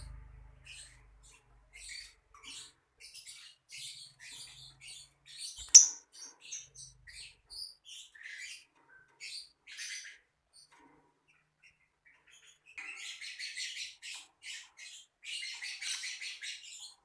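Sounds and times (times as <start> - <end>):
lovebird chirping: 0.0 - 8.6.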